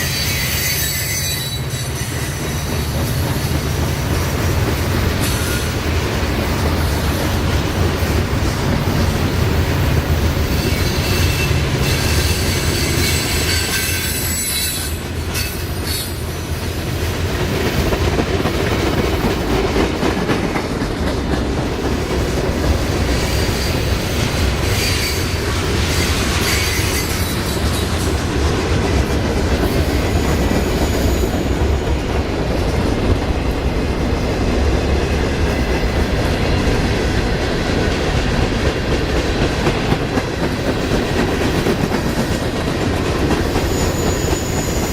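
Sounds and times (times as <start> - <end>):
high-pitched wheel squeal: 0.0 - 2.8, 10.5 - 16.2, 24.6 - 28.2, 43.6 - 44.9
train cars rumbling past: 0.0 - 44.9.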